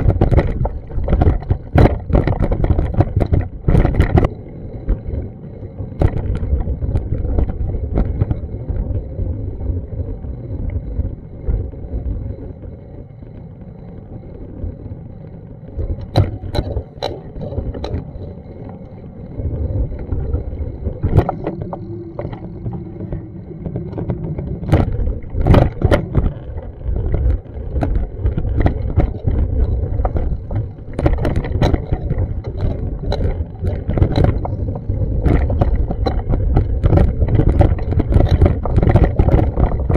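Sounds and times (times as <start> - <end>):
sharp knocks and clicks: 0.0 - 4.3, 15.9 - 18.1, 23.9 - 39.9.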